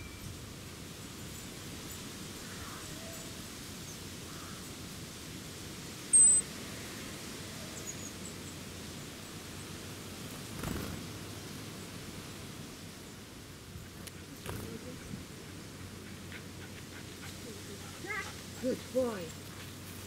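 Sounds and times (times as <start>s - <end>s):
faint high chirps: 6.1s - 6.4s
high thin bird call: 6.1s - 6.4s
soft rustle: 13.8s - 20.0s.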